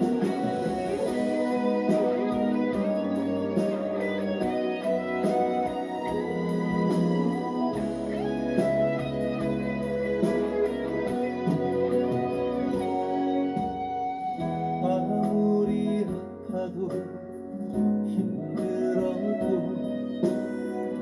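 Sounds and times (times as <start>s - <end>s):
steady beat: 0.0s - 14.1s
guitar lead: 0.0s - 16.6s, 17.2s - 21.0s.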